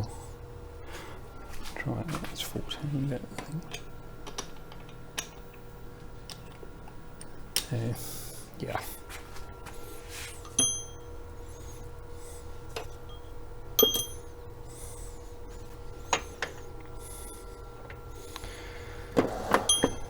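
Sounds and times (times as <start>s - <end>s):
faint steady hum: 0.0s - 20.0s
metal tools clinking: 3.2s - 7.8s, 10.4s - 11.1s, 13.8s - 14.3s.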